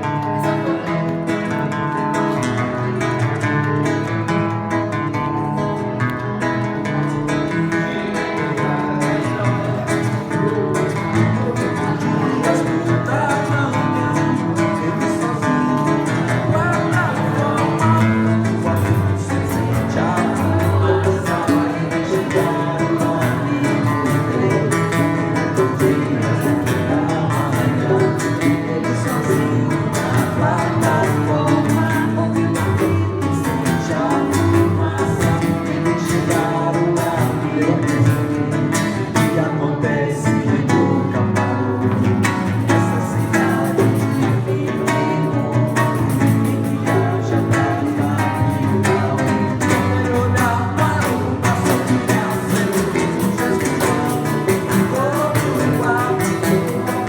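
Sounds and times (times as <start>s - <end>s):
acoustic guitar strummed and picked: 0.0s - 57.0s
hand percussion beat: 0.0s - 57.0s
person singing: 0.0s - 57.0s.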